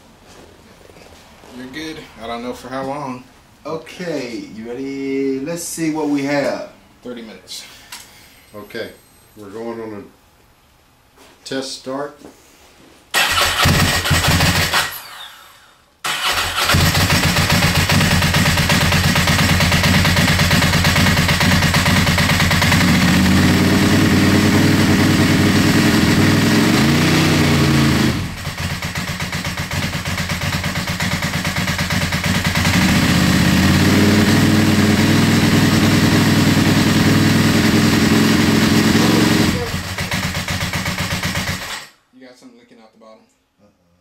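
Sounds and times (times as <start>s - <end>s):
motorcycle engine running: 16.3s - 41.7s.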